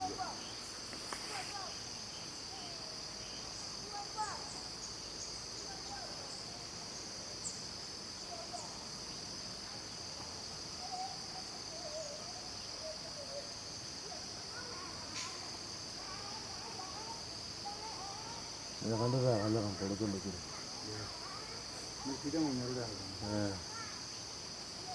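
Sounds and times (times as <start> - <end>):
faint chirps: 0.0 - 24.9
insects droning: 0.0 - 24.9.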